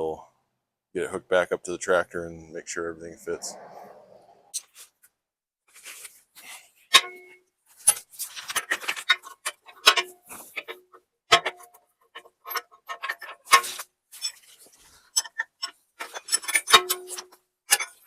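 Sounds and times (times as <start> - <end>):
wrench clinking on metal bolts: 6.9 - 14.5, 15.2 - 18.0.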